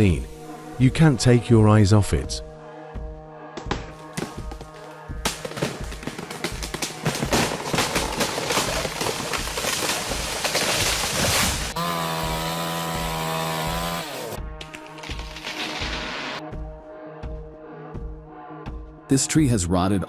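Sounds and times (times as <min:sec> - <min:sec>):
background music with steady beat: 0:00.0 - 0:07.6, 0:16.4 - 0:19.5
chainsaw cutting: 0:05.5 - 0:14.4.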